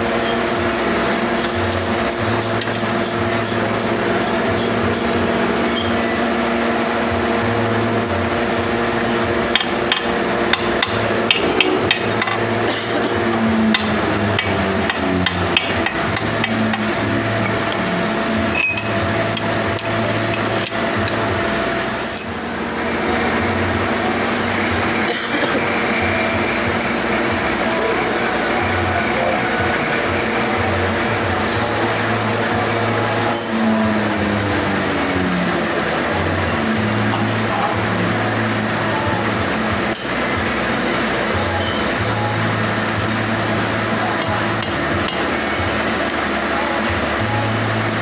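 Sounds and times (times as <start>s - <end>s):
machine hum: 0.0s - 48.0s
hammer striking metal: 9.6s - 21.2s.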